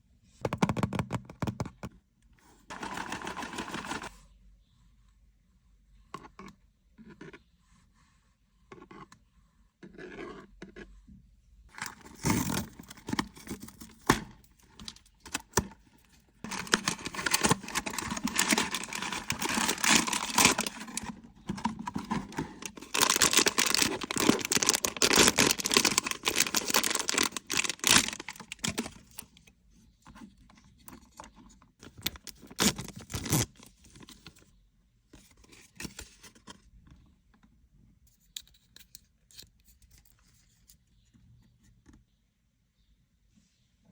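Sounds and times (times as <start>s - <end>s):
packaging taps and rustles: 2.7s - 4.1s, 16.4s - 29.3s, 31.8s - 34.4s
wrapping tearing and crinkling: 16.4s - 29.2s, 31.8s - 34.1s.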